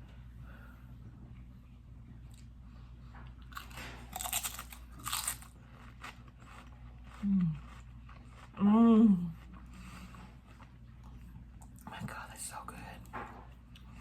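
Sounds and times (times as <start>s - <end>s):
potato chip crunching: 3.5s - 8.6s.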